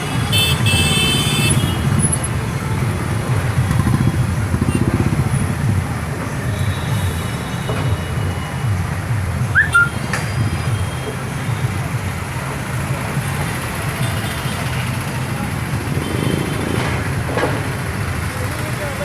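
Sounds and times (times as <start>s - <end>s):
motorcycles riding past: 1.5s - 6.0s, 13.0s - 19.0s.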